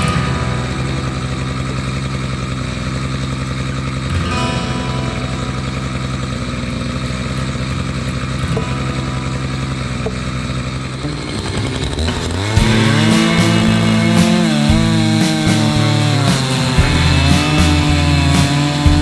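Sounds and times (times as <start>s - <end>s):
chainsaw engine running: 10.5s - 19.0s.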